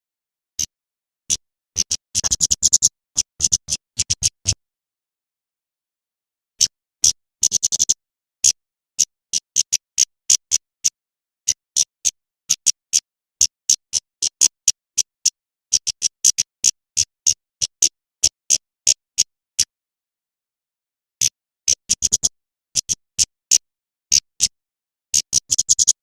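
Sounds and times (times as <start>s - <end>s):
bird calling with sharp chips: 1.3s - 4.6s.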